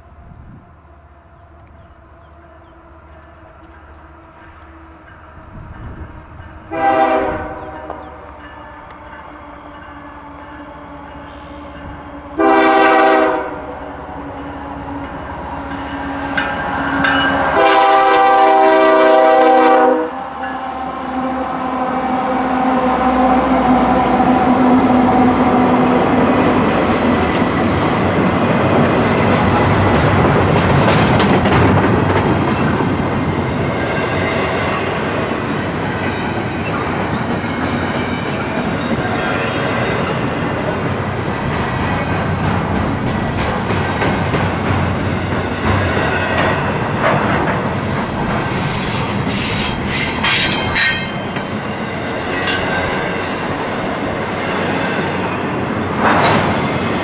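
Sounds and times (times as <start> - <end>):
train wheels rumbling on rails: 0.0 - 57.0
locomotive horn blasts: 6.7 - 11.7, 12.4 - 13.8, 17.4 - 25.4.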